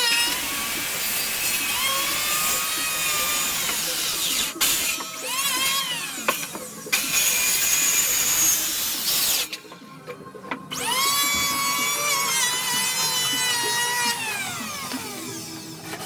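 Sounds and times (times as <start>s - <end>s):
electric power tool whining: 10.7s - 16.0s.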